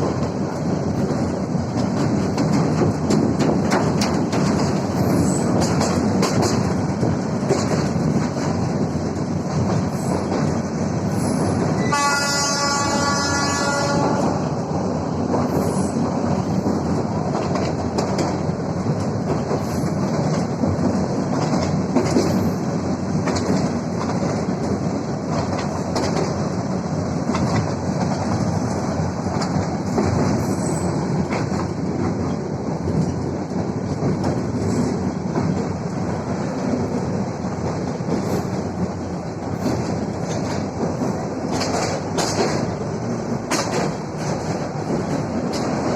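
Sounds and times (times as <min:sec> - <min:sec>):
wheels clicking over rail joints: 0:00.0 - 0:12.0, 0:14.8 - 0:45.9
train running on rails: 0:00.0 - 0:45.9
train horn: 0:11.8 - 0:14.4.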